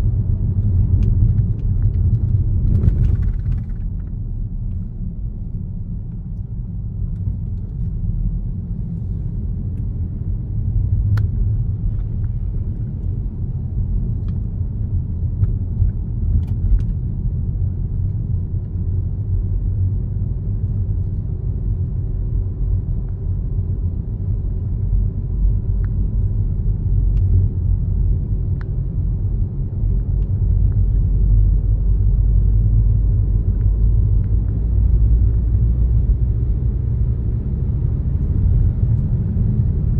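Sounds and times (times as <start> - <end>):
tyre and road rumble: 0.0 - 4.8.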